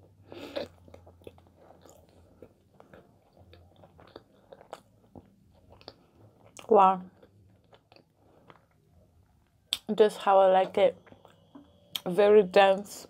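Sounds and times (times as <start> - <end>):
chewing mouth clicks: 0.4 - 8.7.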